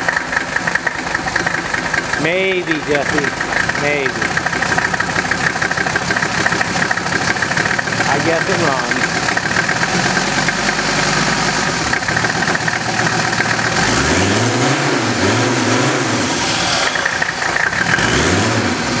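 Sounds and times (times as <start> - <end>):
diesel engine clattering and revving: 0.0 - 19.0.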